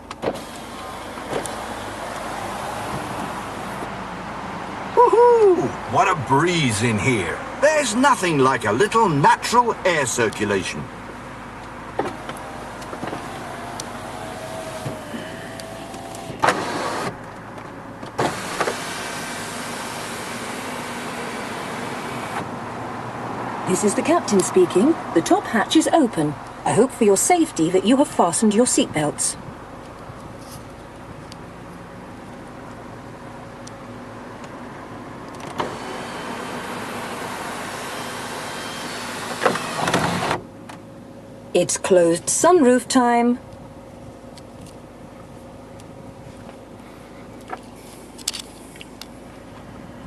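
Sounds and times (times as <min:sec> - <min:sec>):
faint motor whine: 0:11.9 - 0:17.2, 0:35.6 - 0:40.4.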